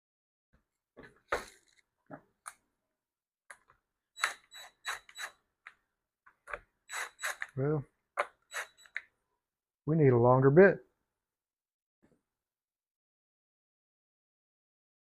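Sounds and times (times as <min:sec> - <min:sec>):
screwdriver clicking on plastic screws: 0:03.5 - 0:05.8, 0:06.4 - 0:07.6, 0:08.2 - 0:09.1.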